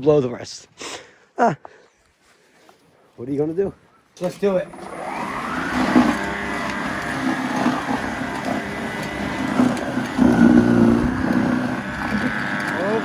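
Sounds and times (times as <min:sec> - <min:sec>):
snowblower motor hum: 0:04.2 - 0:13.0.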